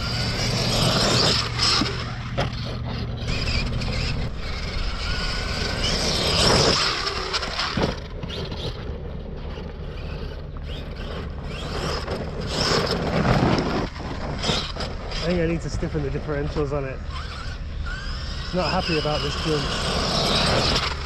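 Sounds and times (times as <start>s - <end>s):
toy car hitting ground: 0.0s - 15.2s
electric motor whine: 0.0s - 21.0s
tyres on gravel: 0.0s - 21.0s.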